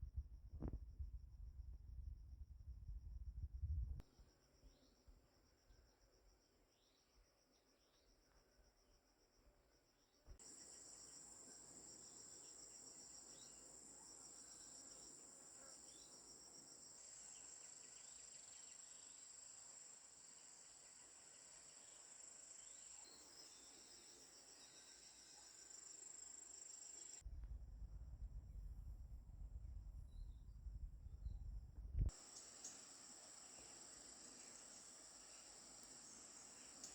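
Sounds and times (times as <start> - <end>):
faint short insect chirps: 3.3 - 27.2, 32.1 - 36.9
insects trilling: 10.4 - 27.2, 32.1 - 36.9.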